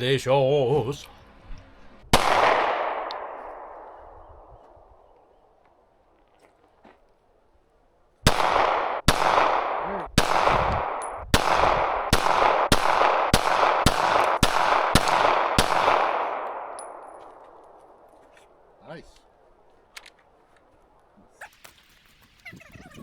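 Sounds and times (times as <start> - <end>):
gunshots with rolling echo: 2.1 - 5.6, 8.2 - 18.8.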